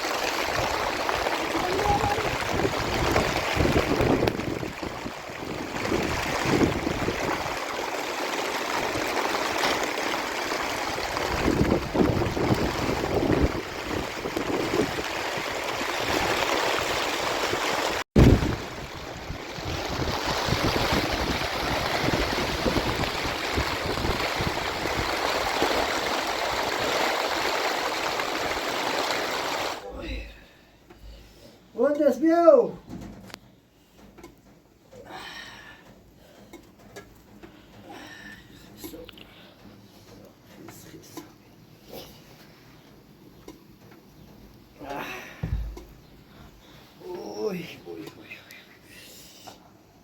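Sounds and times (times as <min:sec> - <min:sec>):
heavy rain pouring: 0:00.0 - 0:30.7, 0:44.7 - 0:48.4.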